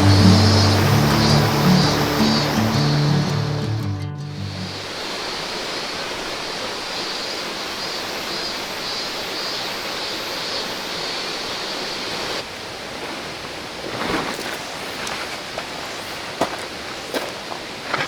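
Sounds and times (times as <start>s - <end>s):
river water rushing over rocks: 0.0s - 13.9s.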